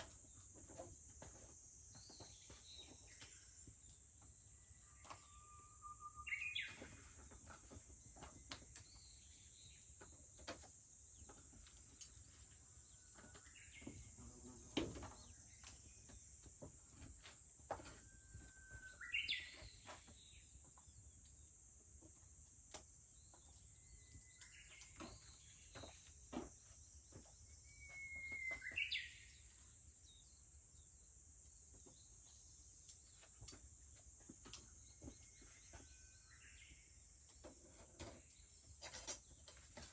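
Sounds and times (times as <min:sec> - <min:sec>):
high drone of cicadas: 0:00.0 - 0:39.9
bush warbler singing: 0:05.0 - 0:07.0, 0:18.9 - 0:20.5, 0:27.4 - 0:29.5.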